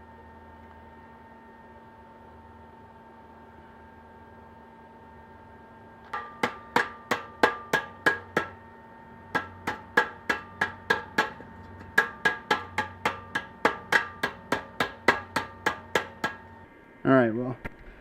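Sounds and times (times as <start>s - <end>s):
hammer striking steel pipe: 6.1s - 8.6s, 9.2s - 16.6s.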